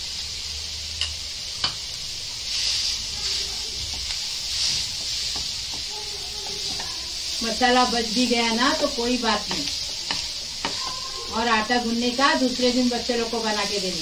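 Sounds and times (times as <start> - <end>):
filling sizzling in a frying pan: 0.0 - 14.0
spatula tapping a pan: 1.0 - 1.8, 3.8 - 7.2, 8.5 - 11.4
spatula stirring food: 1.0 - 14.0.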